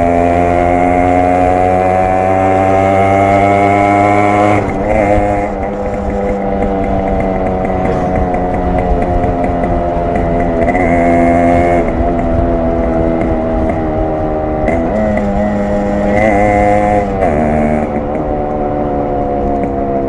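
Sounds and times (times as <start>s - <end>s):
motorcycle engine and exhaust: 0.0s - 20.0s.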